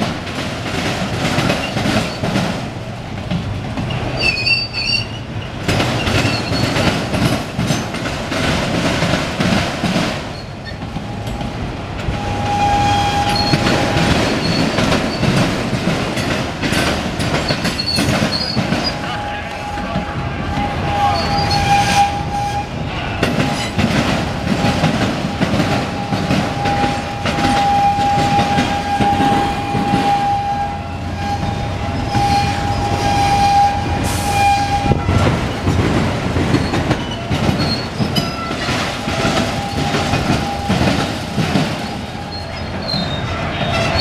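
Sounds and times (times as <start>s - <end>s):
wheels clattering over rail joints: 0.0s - 22.6s, 23.2s - 44.0s
high squeal: 12.2s - 15.2s, 17.8s - 22.7s, 26.0s - 35.7s, 41.8s - 44.0s.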